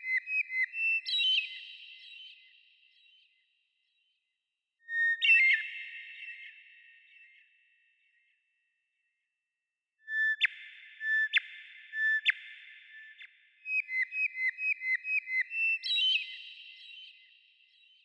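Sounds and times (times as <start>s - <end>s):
bird whistled song: 0.0s - 3.4s, 4.8s - 7.4s, 10.0s - 18.0s.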